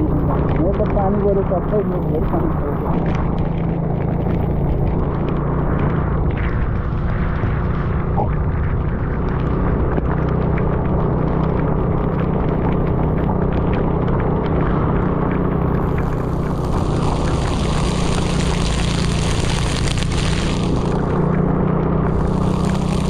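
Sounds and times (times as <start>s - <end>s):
heavy rain and wind noise: 0.0s - 23.0s
scooter engine running: 15.0s - 23.0s
high hiss: 16.1s - 21.0s, 22.2s - 23.0s.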